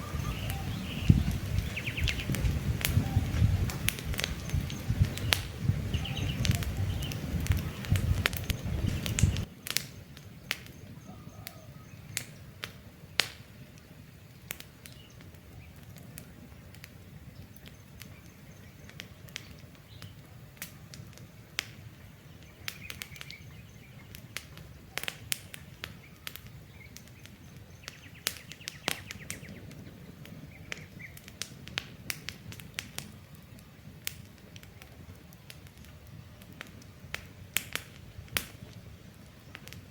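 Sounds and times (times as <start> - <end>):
birds chirping faintly: 0.0 - 31.5
campfire crackling and popping: 0.0 - 39.9.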